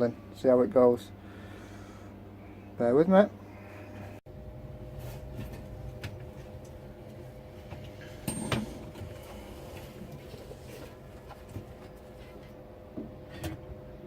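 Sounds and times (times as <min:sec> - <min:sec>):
electrical hum: 0:00.0 - 0:14.0
metallic clank: 0:08.0 - 0:09.0.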